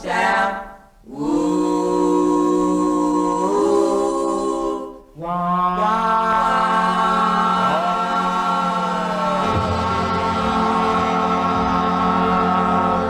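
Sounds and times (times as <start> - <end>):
vocal group singing harmony: 0.0 - 13.0
low sung notes: 9.2 - 13.0.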